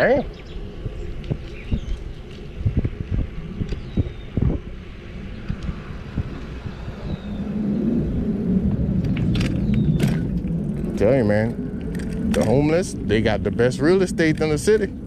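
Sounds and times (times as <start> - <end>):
low rumble: 0.0 - 15.0
wind buffeting microphone: 0.0 - 15.0
bike knocking and rattling over bumps: 0.8 - 4.7, 9.0 - 12.8.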